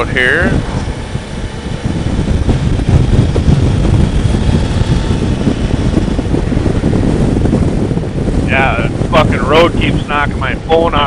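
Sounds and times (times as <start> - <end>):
motorcycle engine: 0.0 - 10.8
road noise: 0.0 - 11.0
wind on microphone: 0.0 - 11.0.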